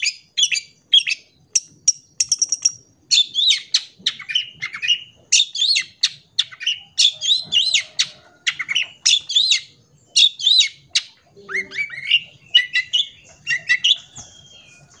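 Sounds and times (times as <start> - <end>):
shrike singing chattering song: 0.0 - 15.0.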